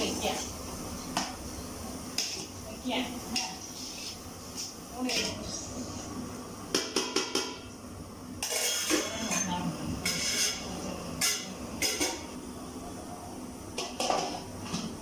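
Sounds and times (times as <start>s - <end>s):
metal spoon clinking on cookware: 8.4s - 10.6s.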